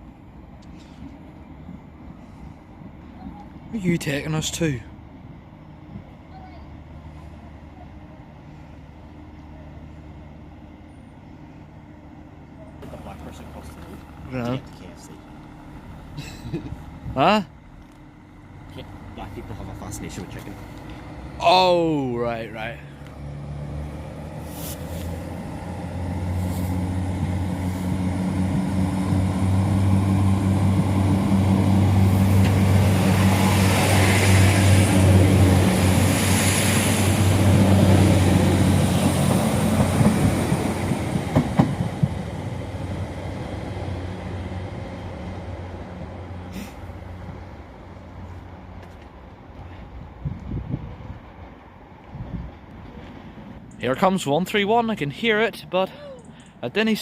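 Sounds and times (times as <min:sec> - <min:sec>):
train engine drone: 0:00.0 - 0:57.0
train wheel noise: 0:00.0 - 0:57.0.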